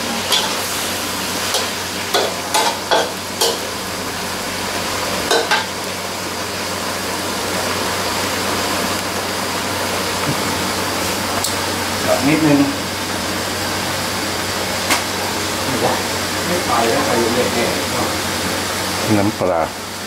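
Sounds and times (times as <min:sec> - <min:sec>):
meat sizzling in a wok: 0:00.0 - 0:20.0
metal spatula scraping a wok: 0:00.1 - 0:03.7.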